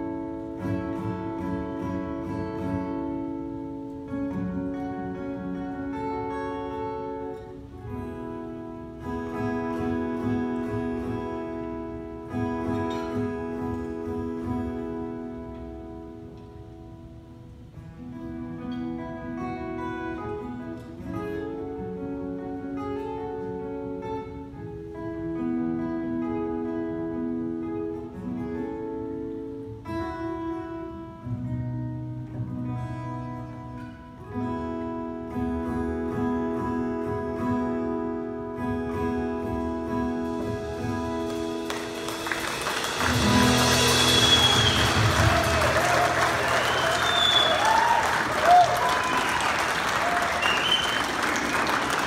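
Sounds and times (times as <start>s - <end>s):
acoustic guitar strumming: 0.0s - 48.4s
held melody notes: 39.6s - 47.8s
audience applauding: 41.3s - 52.0s.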